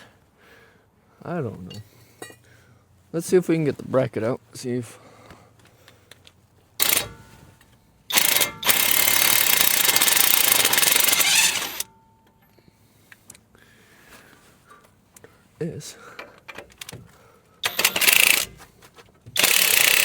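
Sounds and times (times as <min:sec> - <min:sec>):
impact wrench hammering on bolt: 0:06.8 - 0:07.3, 0:08.1 - 0:11.9, 0:17.6 - 0:18.6, 0:19.3 - 0:20.0.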